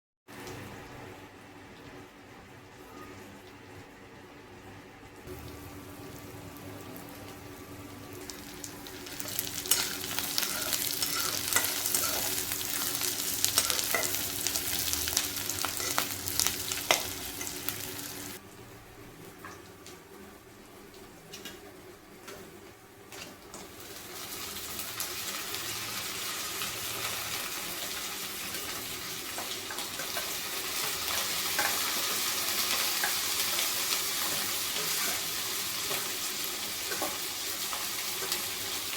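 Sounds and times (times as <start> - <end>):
chicken sizzling in hot oil: 5.2 - 18.4, 23.1 - 38.9.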